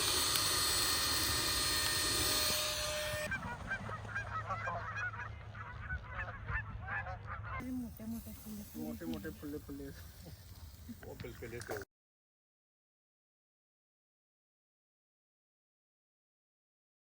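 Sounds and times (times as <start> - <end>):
geese honking: 2.4 - 7.8
steady hiss: 7.9 - 11.8.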